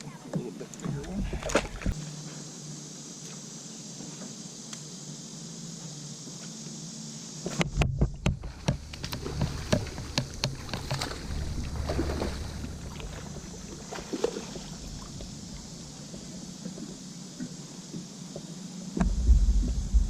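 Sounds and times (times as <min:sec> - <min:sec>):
knocks and clunks on kayak: 0:07.5 - 0:20.0
low rumble: 0:08.4 - 0:14.0, 0:19.0 - 0:20.0.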